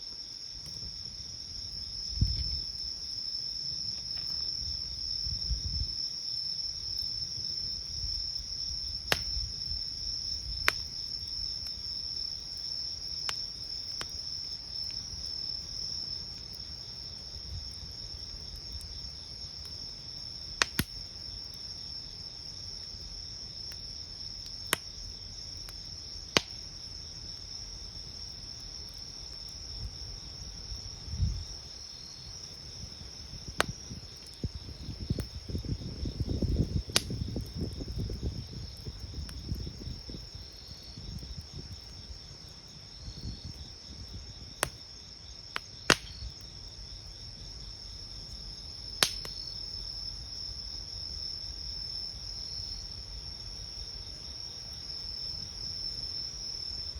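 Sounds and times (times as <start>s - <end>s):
crickets trilling: 0.0s - 56.9s
campfire crackling and popping: 0.2s - 56.1s
fire flaring up: 32.4s - 42.1s.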